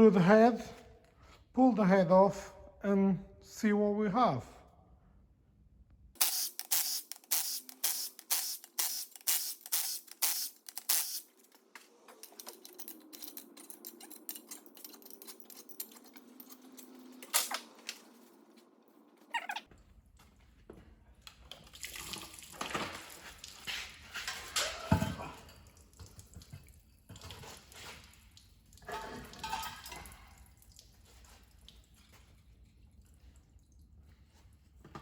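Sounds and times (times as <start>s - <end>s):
ratchet clicking: 6.2s - 11.3s
tools clicking on metal: 6.2s - 17.6s.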